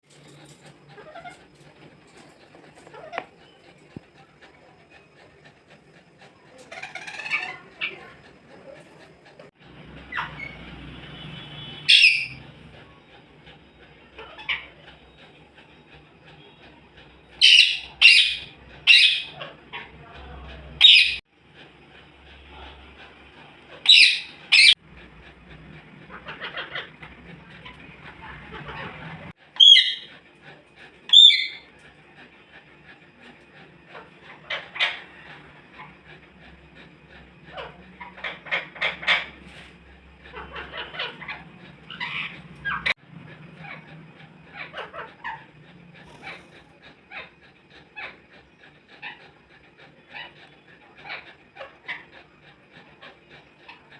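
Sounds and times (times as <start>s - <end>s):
parrot chattering: 0.1s - 9.5s, 11.9s - 13.0s, 16.3s - 21.2s, 23.6s - 24.8s, 25.4s - 31.8s, 33.2s - 36.2s, 37.3s - 53.9s
parrot squawking: 0.4s - 1.6s, 2.2s - 3.7s, 6.5s - 9.0s, 11.6s - 12.5s, 14.1s - 15.1s, 17.3s - 20.0s, 20.8s - 21.2s, 23.7s - 24.8s, 26.1s - 30.1s, 31.1s - 31.7s, 33.9s - 36.0s, 37.5s - 39.7s, 40.3s - 43.0s, 44.5s - 47.4s
parrot warbling calls: 6.6s - 8.2s, 17.4s - 19.6s, 23.8s - 24.8s, 29.6s - 30.1s, 31.1s - 31.6s.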